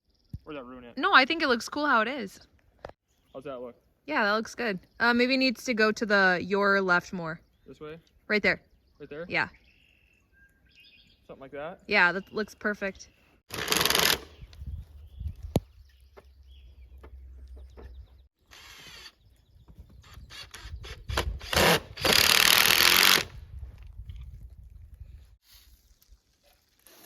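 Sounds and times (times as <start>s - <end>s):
power drill running: 13.5s - 14.3s, 18.5s - 19.1s, 20.0s - 23.3s.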